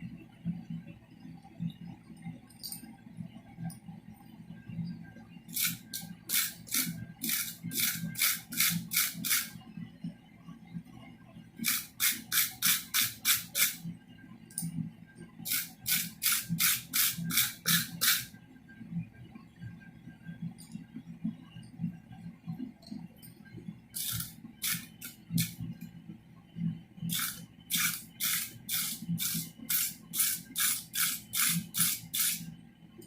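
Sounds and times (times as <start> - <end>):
abrasive strokes on steel: 5.5 - 9.5, 11.6 - 13.8, 15.5 - 18.3, 24.0 - 25.6, 27.1 - 32.5.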